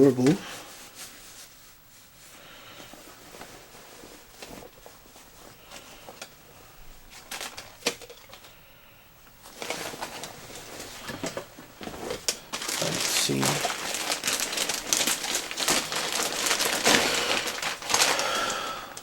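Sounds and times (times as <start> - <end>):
rustling of cotton pants: 0.4 - 7.1.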